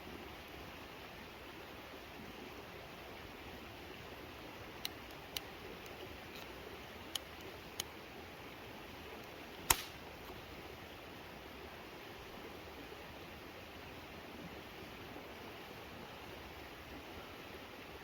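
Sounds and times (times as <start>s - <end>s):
campfire wood popping: 9.2s - 10.4s.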